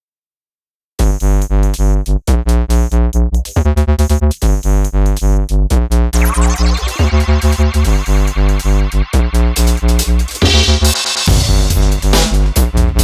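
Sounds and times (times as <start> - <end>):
electronic synthesizer music: 6.2 - 12.5.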